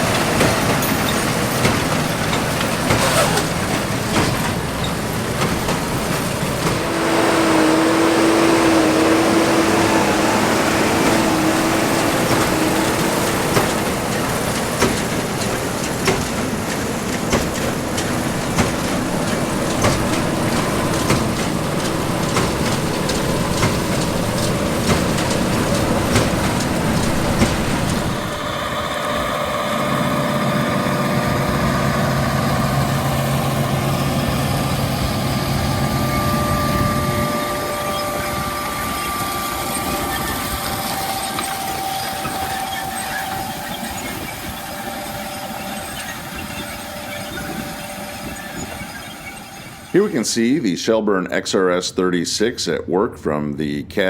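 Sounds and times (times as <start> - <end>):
combine harvester running: 0.0 - 50.9.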